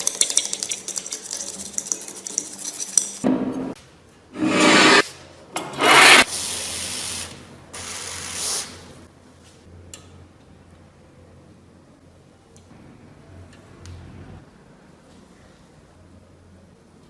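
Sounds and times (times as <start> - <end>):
abrasive rubbing on a knife: 4.4 - 5.0, 5.6 - 6.3.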